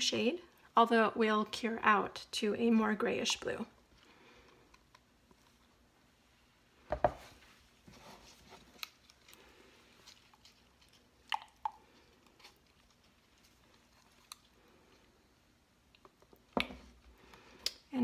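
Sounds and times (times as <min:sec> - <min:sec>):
plastic jugs knocking: 0:06.9 - 0:07.2.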